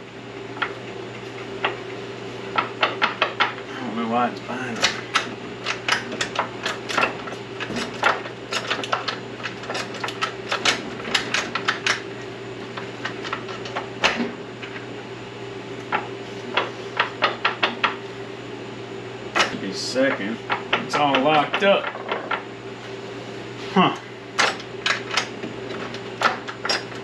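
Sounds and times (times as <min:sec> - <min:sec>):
steady low hum: 0:00.0 - 0:27.0
metallic clicks and clanks of gears: 0:24.4 - 0:27.0.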